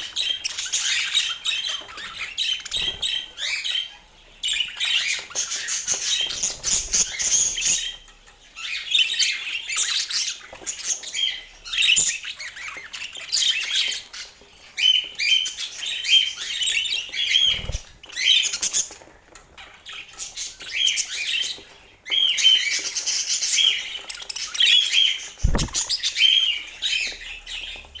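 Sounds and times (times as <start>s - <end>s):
budgerigars chirping and squawking: 0.0s - 28.0s
dull low thumps: 25.4s - 26.0s.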